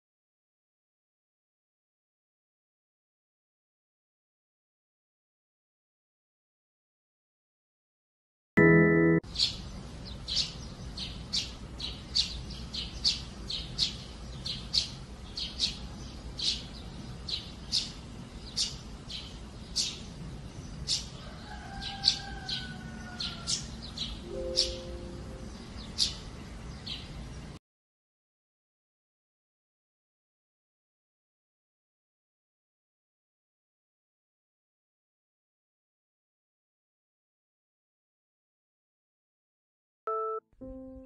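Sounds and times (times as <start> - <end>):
sparrows chirping: 9.3 - 27.6.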